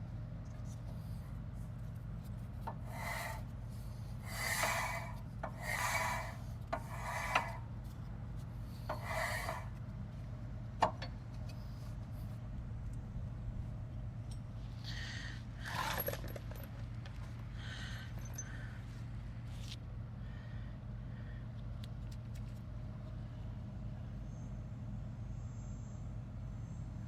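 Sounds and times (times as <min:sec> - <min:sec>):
steady low hum: 0:00.0 - 0:27.0
hand tool rasping on metal: 0:02.7 - 0:03.5, 0:04.2 - 0:07.6, 0:08.8 - 0:09.8.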